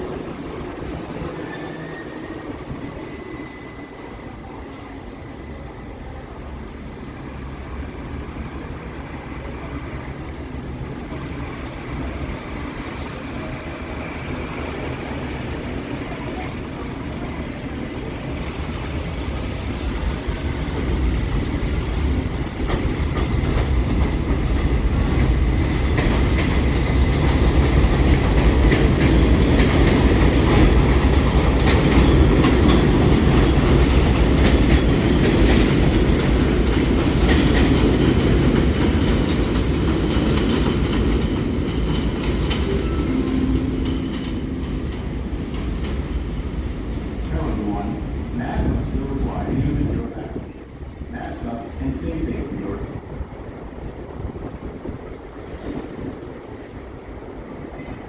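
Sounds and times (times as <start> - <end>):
subway train running: 0.0 - 58.0
wheels clacking over rail joints: 22.0 - 42.9.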